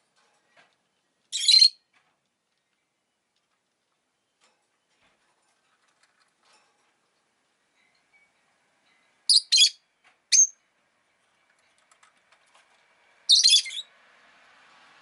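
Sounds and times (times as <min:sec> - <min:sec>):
lovebird high-pitched chirps: 0:01.3 - 0:01.8, 0:07.8 - 0:10.6, 0:13.3 - 0:13.9.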